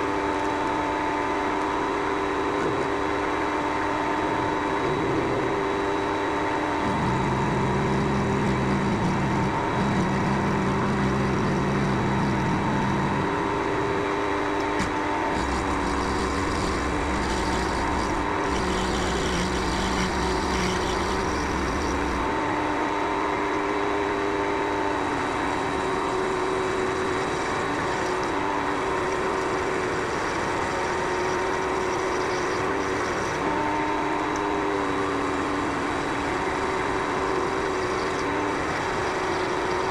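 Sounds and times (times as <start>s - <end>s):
lathe motor whine: 0.0s - 39.9s
lathe tool cutting workpiece: 14.6s - 22.8s, 25.0s - 33.7s, 34.8s - 39.9s.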